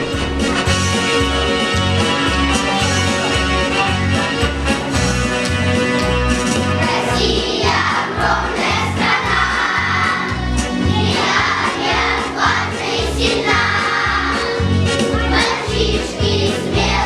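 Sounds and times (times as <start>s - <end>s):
children's choir singing: 6.7s - 17.0s.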